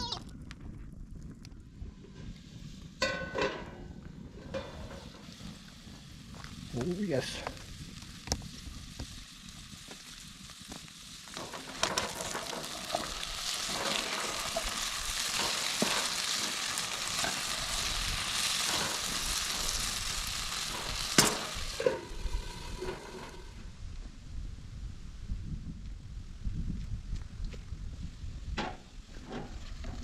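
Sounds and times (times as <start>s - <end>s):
small crackles: 0.0s - 2.8s, 4.3s - 23.6s
food sizzling in a pan: 4.3s - 23.6s.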